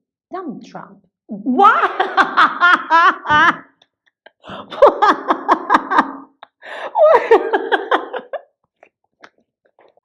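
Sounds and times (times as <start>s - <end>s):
woman giggling: 1.6s - 3.8s, 4.6s - 8.5s.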